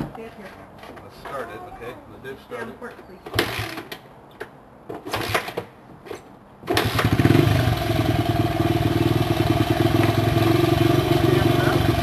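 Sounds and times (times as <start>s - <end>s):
dirt bike engine running: 7.0s - 12.0s.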